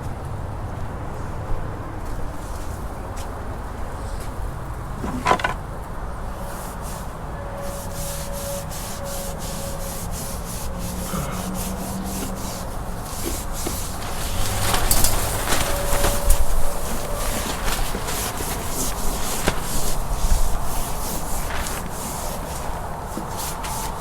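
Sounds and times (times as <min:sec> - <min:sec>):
cloth rubbing boat surface: 0:04.3 - 0:05.7, 0:06.4 - 0:24.0.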